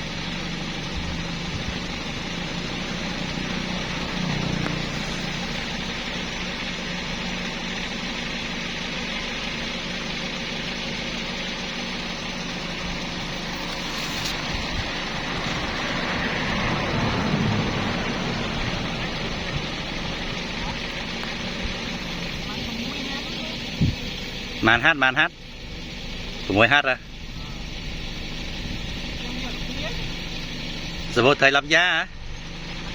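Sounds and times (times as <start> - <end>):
small engine idling: 0.0 - 32.9.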